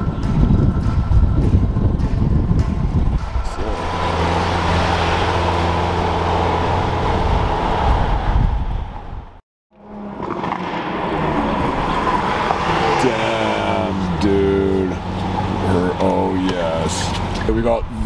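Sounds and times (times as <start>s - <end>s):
car engine idling: 10.2s - 17.6s.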